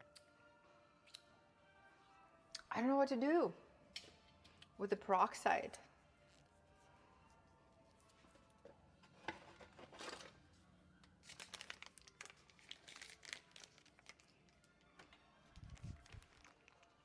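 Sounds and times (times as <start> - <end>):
crinkling and rustling objects: 6.2 - 17.0.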